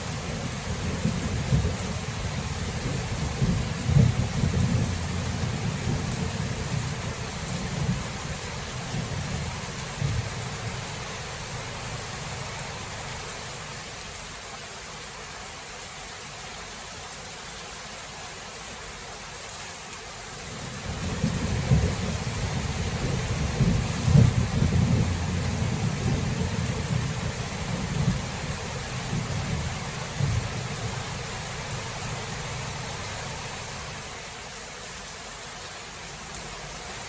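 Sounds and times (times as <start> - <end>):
steady rain hiss: 0.0 - 37.0
rolling thunder: 0.7 - 8.1, 20.8 - 30.6.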